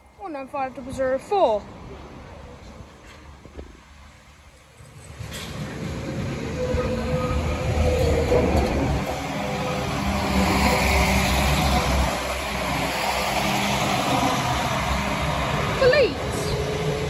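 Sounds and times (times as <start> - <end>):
rail and wheel rumble: 0.0 - 17.0
diesel engine drone: 5.3 - 17.0.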